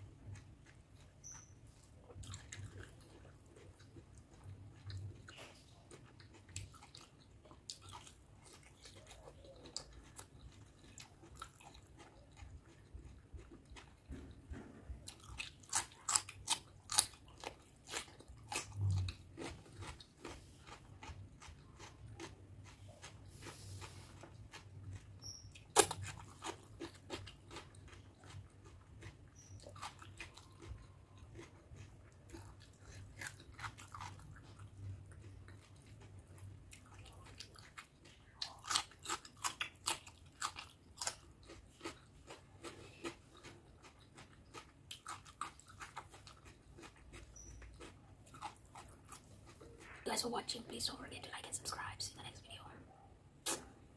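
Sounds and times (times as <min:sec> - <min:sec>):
person chewing with wet smacking: 0:00.0 - 0:51.3
crisp crunches of cucumber: 0:15.1 - 0:50.0.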